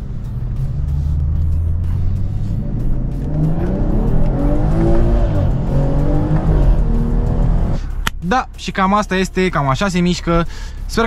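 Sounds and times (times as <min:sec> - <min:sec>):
car engine accelerating hard: 0:00.0 - 0:07.9.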